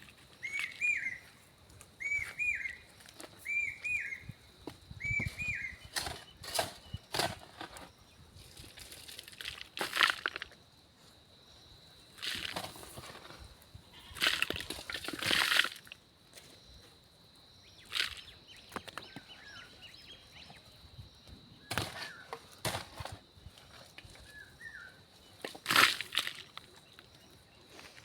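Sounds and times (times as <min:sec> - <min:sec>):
soil and stones crunching: 0:00.0 - 0:28.0
faint bird chirps: 0:00.3 - 0:01.4, 0:02.0 - 0:07.1.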